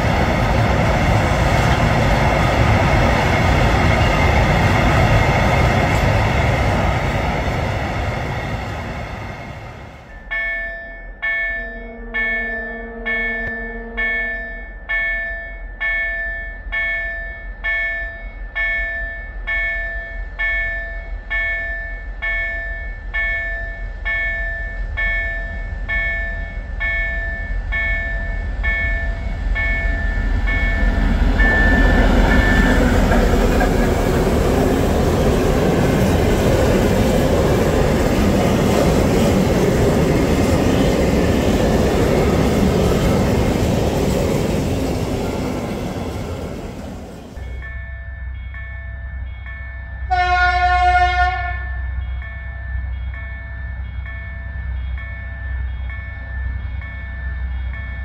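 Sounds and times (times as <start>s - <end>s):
freight train wagons rumbling past: 0.0s - 58.0s
level-crossing warning bell ringing: 10.0s - 58.0s
train horn long note: 11.6s - 14.5s, 50.1s - 51.9s.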